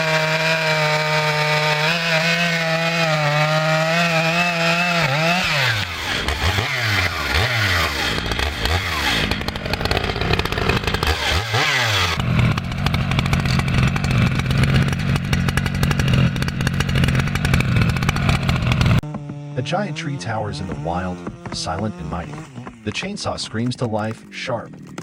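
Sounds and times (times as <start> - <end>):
chainsaw engine revving: 0.0 - 24.0.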